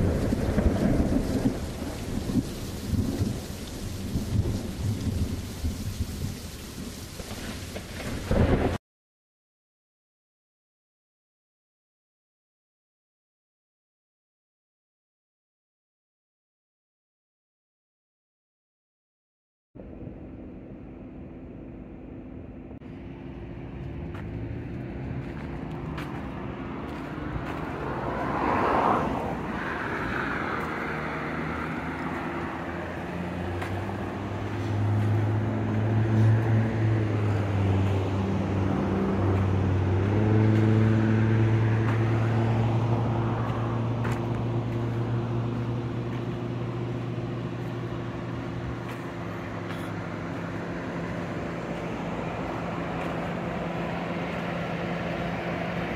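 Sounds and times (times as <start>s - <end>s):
heavy engine droning: 19.8s - 55.9s
vehicle passing: 22.8s - 55.9s.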